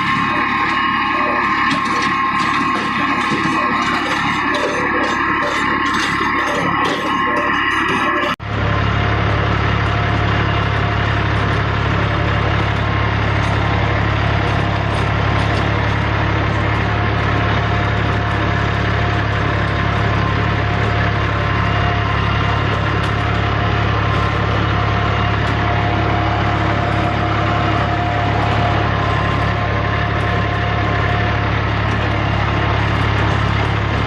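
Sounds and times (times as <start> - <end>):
tractor engine humming: 0.0 - 34.0.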